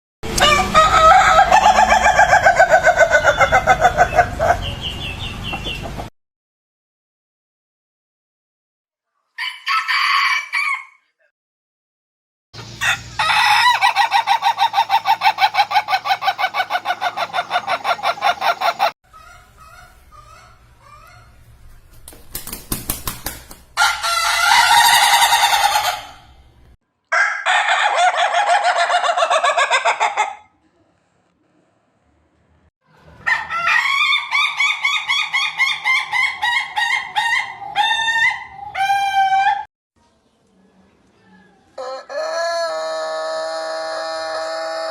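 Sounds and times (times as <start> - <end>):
roosters crowing: 0.2 - 5.7, 9.4 - 11.2, 12.7 - 21.3, 23.8 - 26.5, 27.1 - 30.4, 33.2 - 39.7, 41.8 - 44.9
chicken clucking calls: 0.3 - 6.1, 12.6 - 21.5, 23.8 - 26.4, 27.1 - 30.6, 33.1 - 39.6, 41.7 - 44.9.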